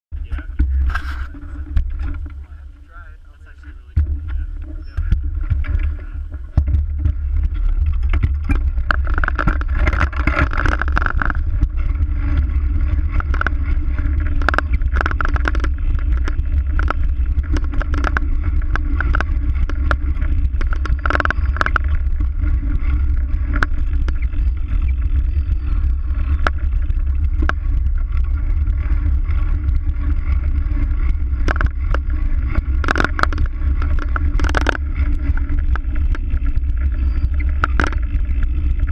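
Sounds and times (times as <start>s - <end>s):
wind and rolling rumble: 0.1s - 38.9s
camera rig knocks and rattles: 4.0s - 24.4s, 31.1s - 38.1s.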